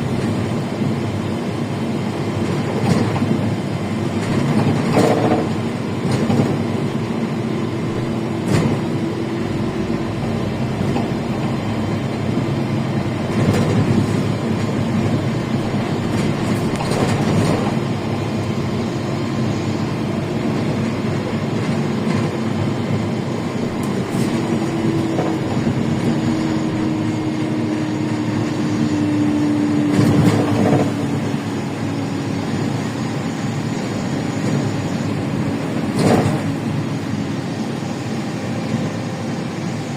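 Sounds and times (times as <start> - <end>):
bus diesel engine: 0.0 - 39.9
road rumble: 0.0 - 39.9
bus body knocks and rattles: 2.2 - 18.8, 20.3 - 27.3, 29.8 - 31.4, 34.5 - 36.9.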